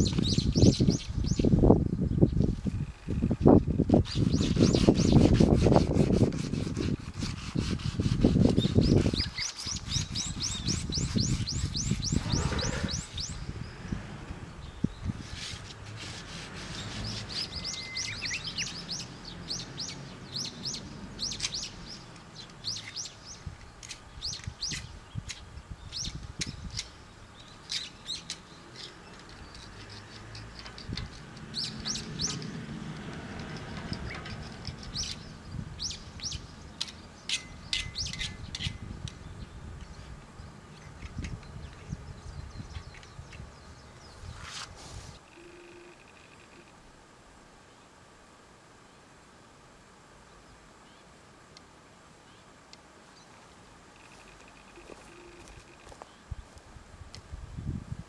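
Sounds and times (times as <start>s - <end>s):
small birds chirping: 0.0s - 15.8s, 16.6s - 44.7s
scraping on steel frame: 4.0s - 13.3s.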